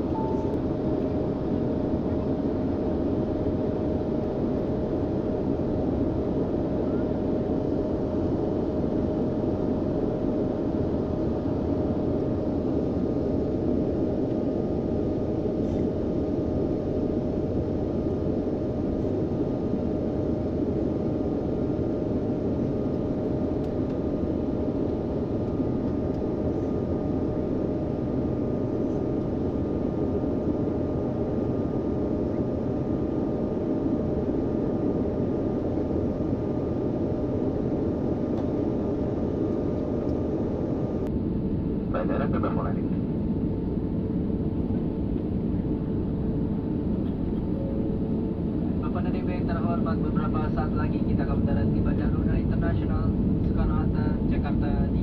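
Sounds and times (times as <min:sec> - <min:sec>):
airliner cabin noise: 0:00.0 - 0:55.0.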